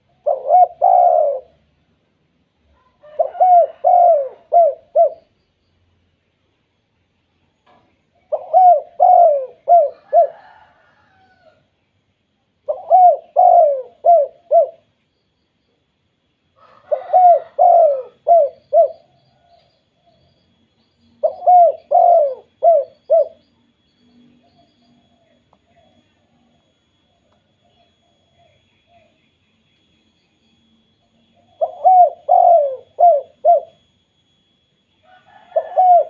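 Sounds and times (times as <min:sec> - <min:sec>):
dove cooing: 0:00.0 - 0:01.6, 0:02.7 - 0:05.4, 0:08.2 - 0:11.6, 0:12.6 - 0:14.9, 0:16.6 - 0:20.2, 0:21.2 - 0:23.5, 0:31.3 - 0:33.9, 0:35.0 - 0:36.0.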